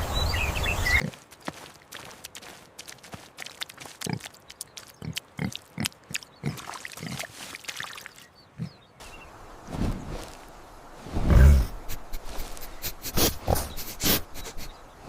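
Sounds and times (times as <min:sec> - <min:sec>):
pig grunting: 0:05.0 - 0:07.2, 0:08.5 - 0:08.8, 0:11.2 - 0:14.7.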